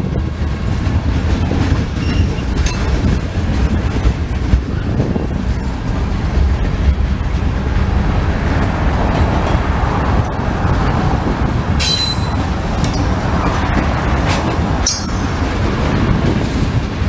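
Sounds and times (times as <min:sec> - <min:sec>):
freight cars rolling past: 0:00.0 - 0:17.0
high-pitched wheel squeal: 0:02.0 - 0:02.5, 0:11.8 - 0:13.1.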